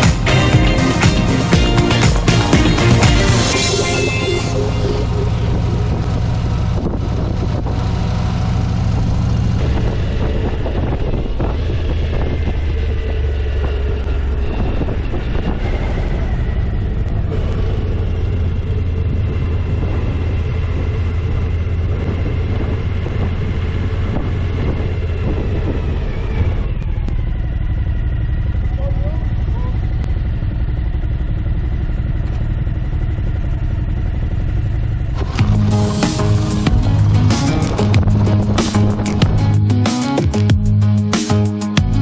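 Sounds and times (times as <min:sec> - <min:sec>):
motorcycle engine running: 0:00.0 - 0:42.0
road noise: 0:00.0 - 0:42.0
wind on microphone: 0:04.4 - 0:27.3, 0:35.2 - 0:39.7.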